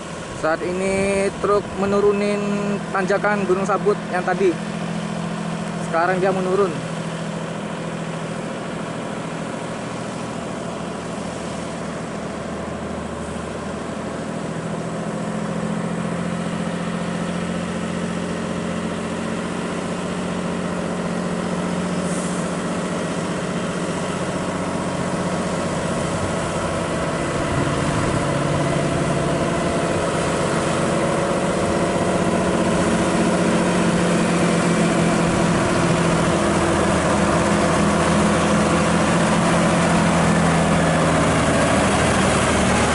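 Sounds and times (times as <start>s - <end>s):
truck diesel engine running: 0.0s - 42.9s.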